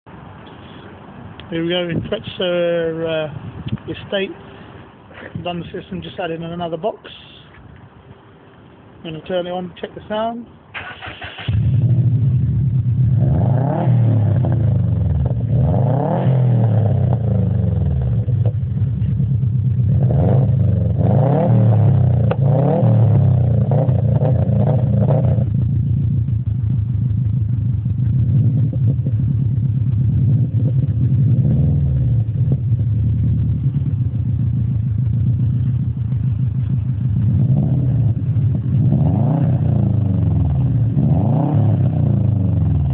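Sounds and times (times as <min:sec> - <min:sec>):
car engine revving and idling: 0:11.0 - 0:42.9.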